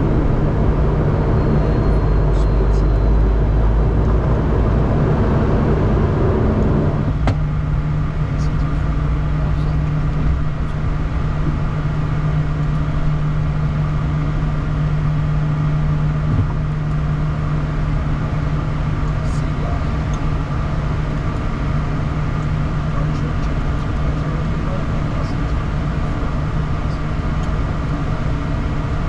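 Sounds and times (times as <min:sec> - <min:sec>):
jet engines droning: 0:00.0 - 0:29.0.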